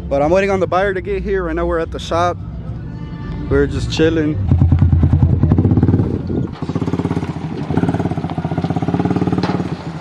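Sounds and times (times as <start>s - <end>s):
vehicle engine running: 3.6s - 10.0s.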